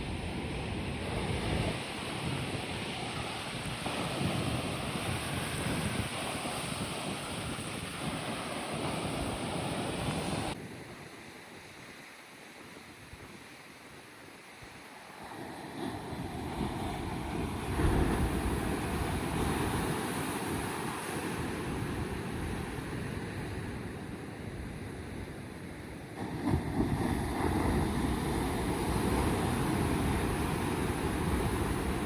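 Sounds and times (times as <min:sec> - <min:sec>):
wind on microphone: 0:00.0 - 0:12.0, 0:12.6 - 0:32.0
sea breaking on rocky shore: 0:15.9 - 0:21.8, 0:26.2 - 0:32.0.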